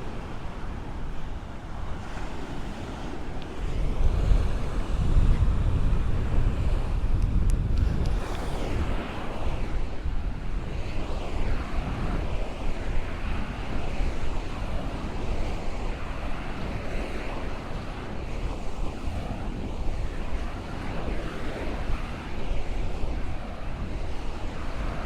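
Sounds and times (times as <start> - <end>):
ocean waves breaking: 0.0 - 5.0, 7.8 - 25.0
wind buffeting microphone: 0.0 - 25.0.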